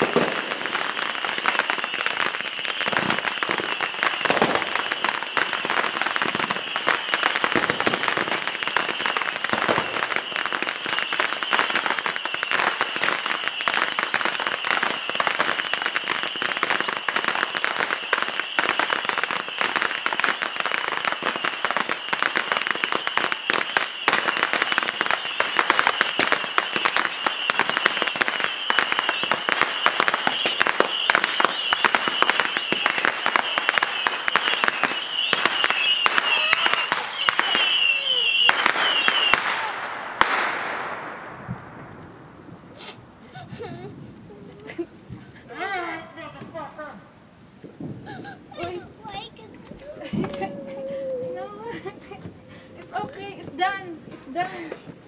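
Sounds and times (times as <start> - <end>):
high firework whistle: 0.0 - 40.8
fireworks cracking and banging: 0.0 - 47.0, 47.6 - 55.0.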